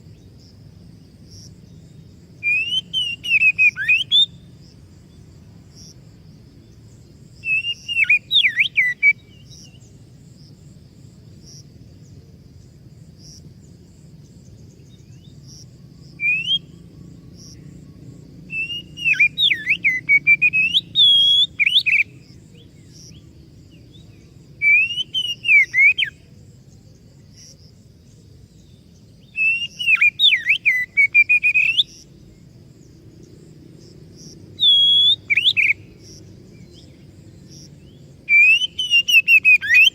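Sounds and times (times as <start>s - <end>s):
bird singing whistled phrases: 2.4s - 4.4s, 7.4s - 9.8s, 16.2s - 16.8s, 18.5s - 22.2s, 24.6s - 26.2s, 29.3s - 32.0s, 34.6s - 35.8s, 38.3s - 39.9s.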